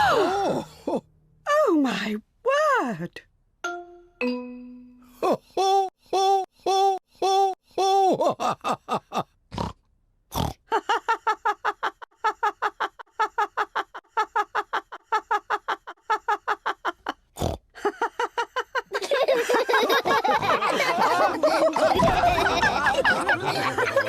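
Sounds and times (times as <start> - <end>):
chime-like notes: 3.6 - 5.2
cartoon pig oinking and snorting: 9.5 - 10.6, 17.4 - 17.6.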